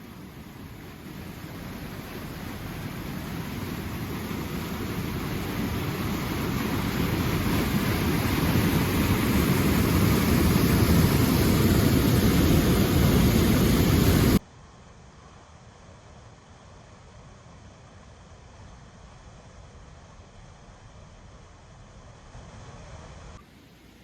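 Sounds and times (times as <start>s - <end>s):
river water roaring: 0.0s - 14.4s.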